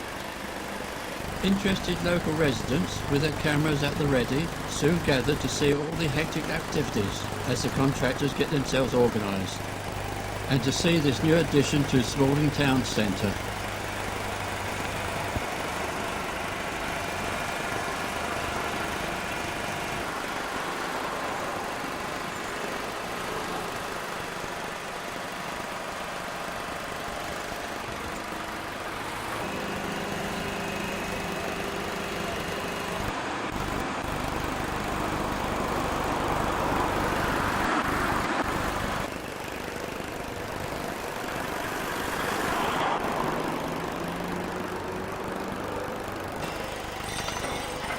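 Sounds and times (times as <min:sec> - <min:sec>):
heavy vehicle engines idling: 0:00.0 - 0:47.9.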